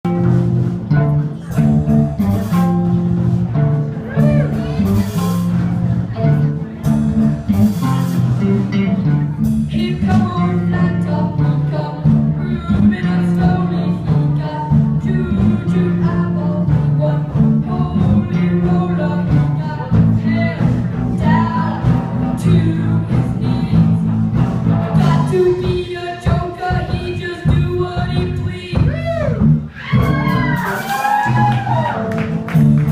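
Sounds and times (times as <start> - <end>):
live band playing: 0.0 - 32.9
person singing: 9.6 - 24.1, 25.0 - 31.5.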